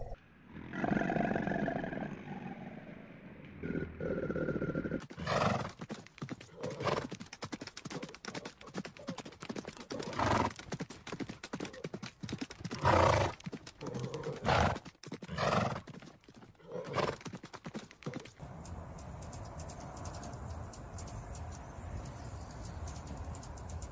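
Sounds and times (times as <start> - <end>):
horses neighing: 3.6 - 5.8, 6.4 - 7.2, 9.8 - 10.6, 12.8 - 15.9
hoofbeats clattering: 5.0 - 23.9.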